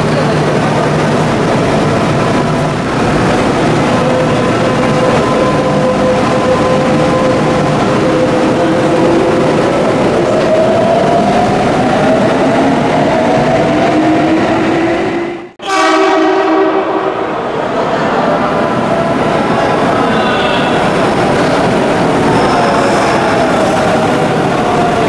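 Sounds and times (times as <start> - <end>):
wheels rumbling on track: 0.0 - 15.0.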